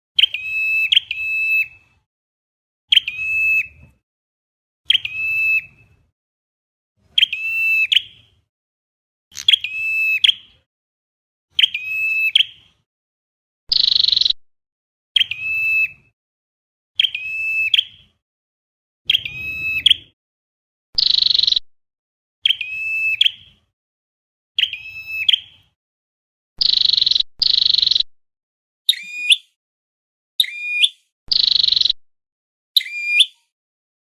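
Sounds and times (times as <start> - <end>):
recorded high bird calls: 0.2 - 1.8, 2.9 - 3.8, 4.9 - 6.0, 7.1 - 8.3, 9.3 - 10.7, 11.5 - 12.7, 13.7 - 14.4, 15.2 - 16.1, 17.0 - 18.2, 19.0 - 20.2, 21.0 - 21.6, 22.4 - 23.7, 24.6 - 25.8, 26.6 - 28.1, 28.9 - 29.6, 30.4 - 32.0, 32.8 - 33.6.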